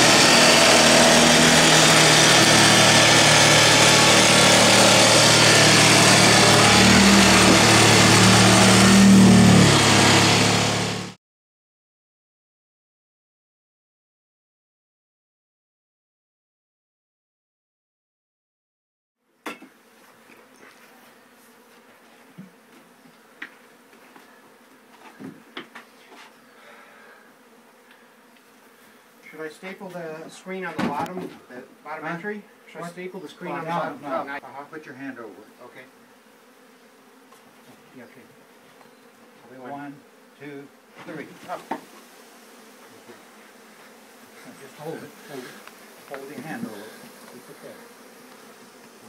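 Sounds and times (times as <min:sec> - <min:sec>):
bees buzzing: 0:00.0 - 0:11.1, 0:35.4 - 0:49.0
small motor humming: 0:00.0 - 0:11.1.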